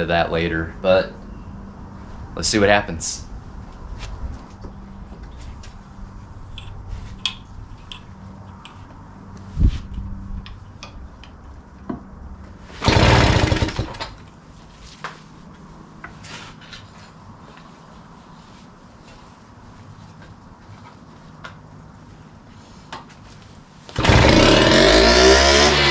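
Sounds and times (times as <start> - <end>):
outboard engine turning over: 12.8 - 14.2, 24.0 - 25.9.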